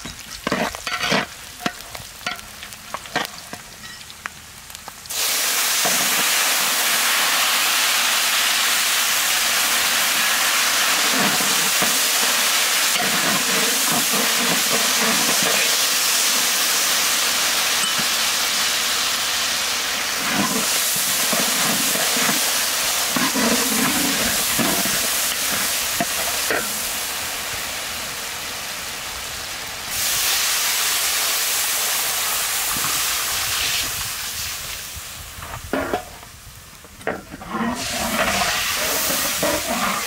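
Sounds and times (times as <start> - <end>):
hot oil sizzling in a wok: 0.0 - 40.0
metal spatula scraping and stirring: 0.4 - 2.5, 20.2 - 26.8, 37.0 - 40.0.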